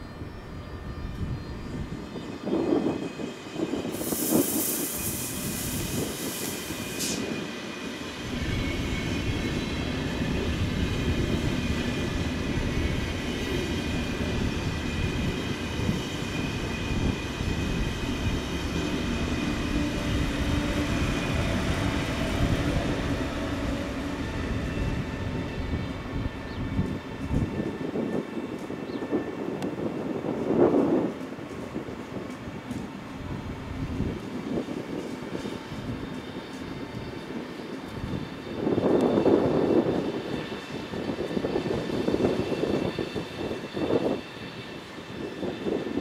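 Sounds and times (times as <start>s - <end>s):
train wheels rumbling on rails: 0.0s - 46.0s
train hiss: 1.9s - 25.7s.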